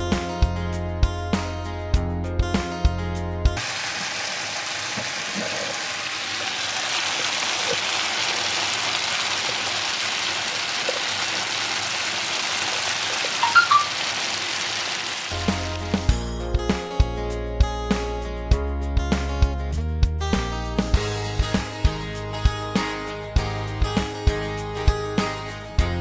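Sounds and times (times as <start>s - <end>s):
food sizzling in a wok: 3.6s - 16.0s.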